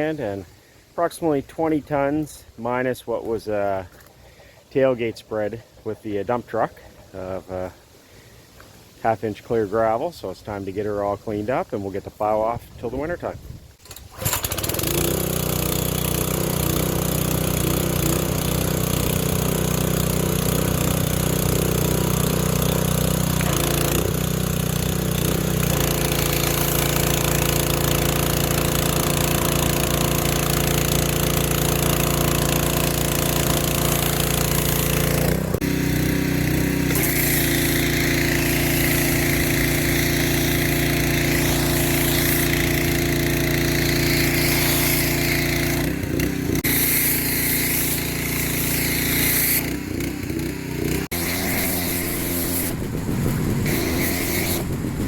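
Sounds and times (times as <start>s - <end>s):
pressure washer engine running: 13.8s - 55.0s.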